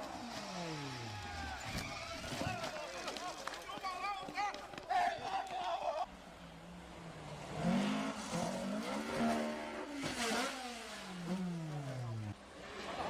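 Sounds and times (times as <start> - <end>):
car engine revving: 6.8 - 13.0.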